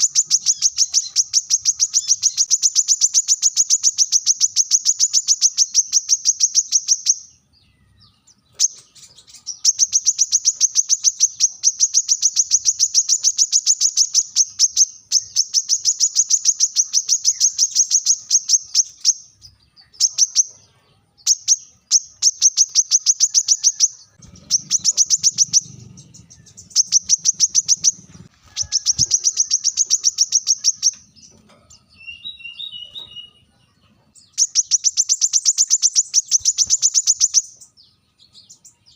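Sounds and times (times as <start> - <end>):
bird high-pitched call: 0.0 - 38.9.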